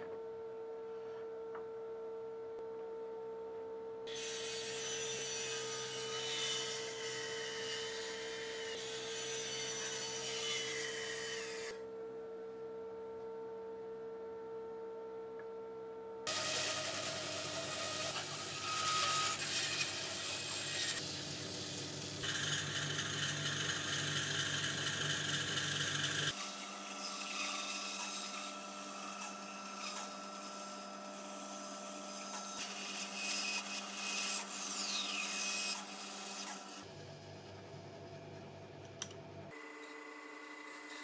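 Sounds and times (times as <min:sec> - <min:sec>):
bandsaw cutting through wood: 0:16.3 - 0:36.9
bandsaw motor hum: 0:16.3 - 0:41.0.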